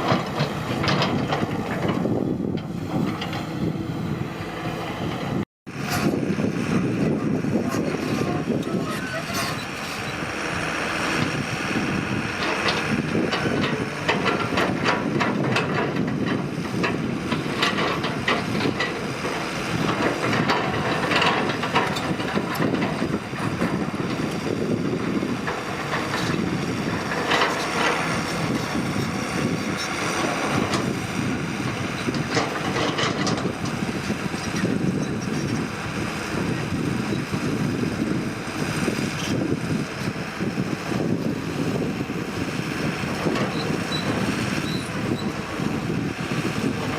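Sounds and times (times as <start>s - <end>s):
clanks and knocks: 0.0s - 3.5s, 12.4s - 24.2s, 32.0s - 35.6s
diesel engine rumbling under load: 0.0s - 46.9s.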